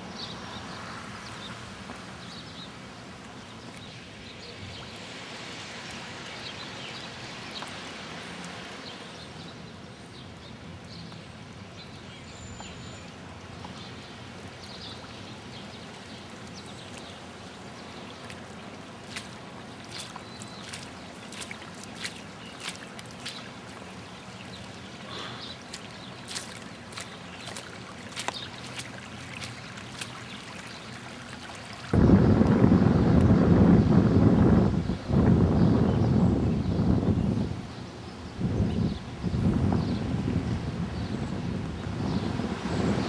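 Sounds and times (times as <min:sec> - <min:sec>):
floodwater rushing: 0:13.2 - 0:32.7.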